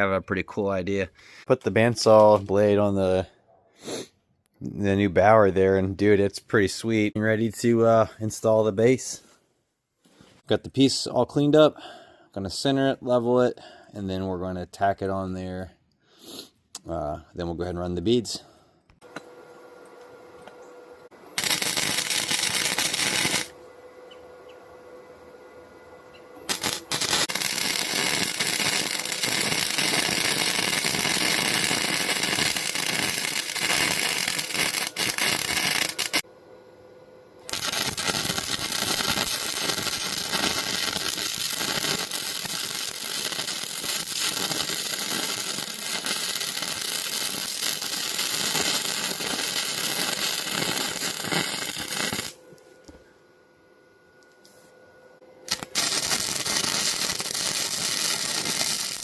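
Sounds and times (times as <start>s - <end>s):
welder arc crackling: 21.4s - 23.6s, 26.4s - 36.2s, 37.5s - 52.4s, 55.5s - 59.0s.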